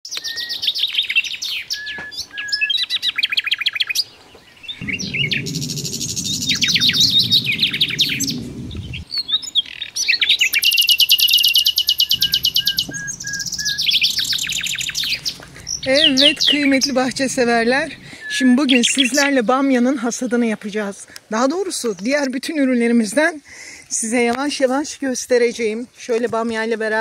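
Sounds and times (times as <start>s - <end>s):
songbirds singing: 0.2s - 20.7s
low rumble: 4.6s - 9.5s, 11.8s - 19.2s.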